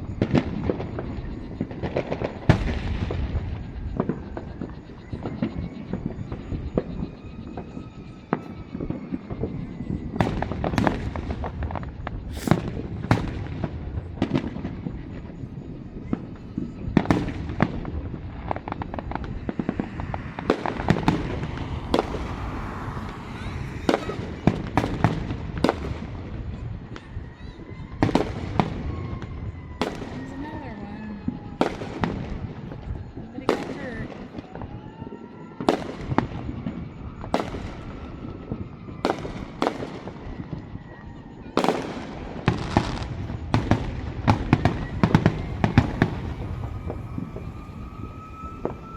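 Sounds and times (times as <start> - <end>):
fireworks crackling: 0.0 - 27.0, 41.6 - 48.9
fireworks bangs and cracks: 0.0 - 48.9
low rumble: 18.0 - 25.4.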